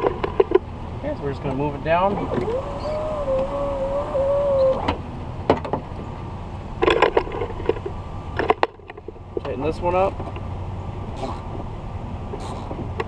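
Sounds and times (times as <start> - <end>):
power window motor whining: 2.2 - 5.1.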